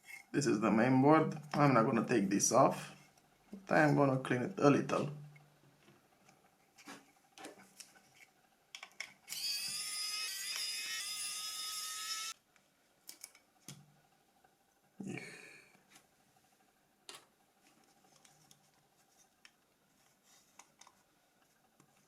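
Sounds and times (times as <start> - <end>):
small electric tool whining: 9.3 - 12.4.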